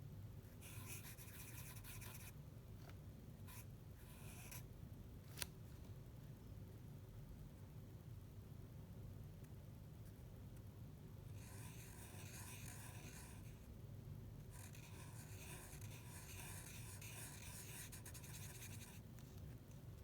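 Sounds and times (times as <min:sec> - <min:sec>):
low steady hum: 0:00.0 - 0:20.0
drawing tool scratching paper: 0:00.6 - 0:02.3, 0:11.4 - 0:13.6, 0:14.5 - 0:19.0.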